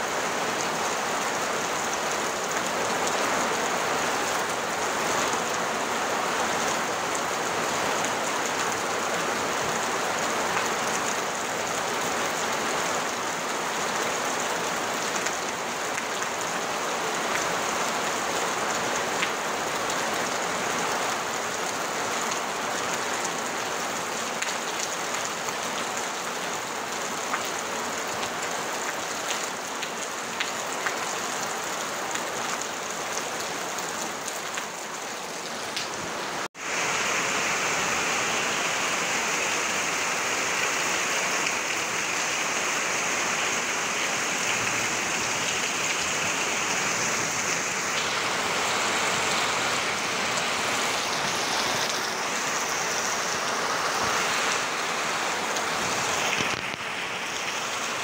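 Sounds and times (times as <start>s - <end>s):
heavy rain on a tin roof: 0.0s - 58.0s
water pouring off roof: 55.4s - 58.0s.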